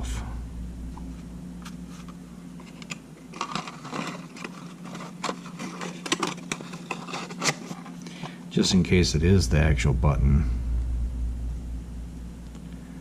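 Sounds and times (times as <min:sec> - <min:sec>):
steady low hum: 0:00.0 - 0:13.0
small tools clicking and scraping: 0:02.6 - 0:08.0.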